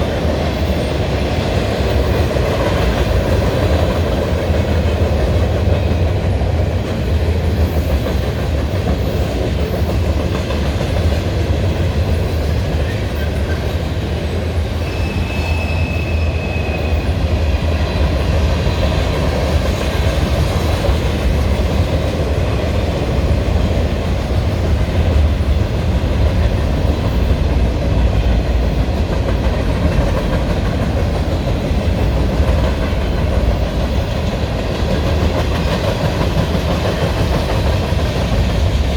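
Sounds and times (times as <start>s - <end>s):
freight train rumbling past: 0.0s - 38.9s
high wheel squeal: 14.8s - 17.5s
wheels clacking over rail joints: 17.4s - 38.9s.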